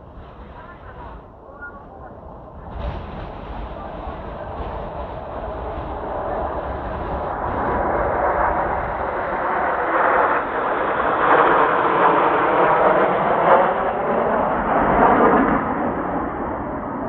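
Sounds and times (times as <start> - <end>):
jets flying past: 0.0 - 17.0.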